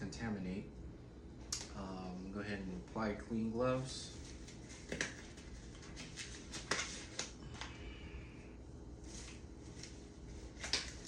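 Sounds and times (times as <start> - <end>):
gloves rustling: 3.8 - 7.8, 8.9 - 11.0.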